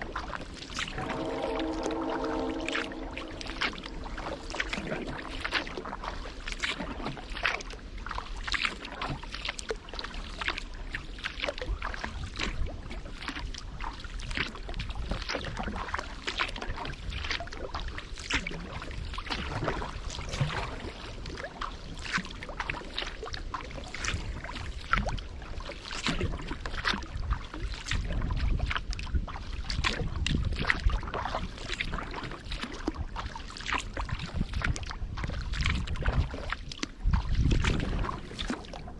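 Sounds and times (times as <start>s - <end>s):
paddle strokes in water: 0.0s - 38.9s
water splashing and dripping: 0.0s - 38.9s
low rumble: 0.5s - 7.4s.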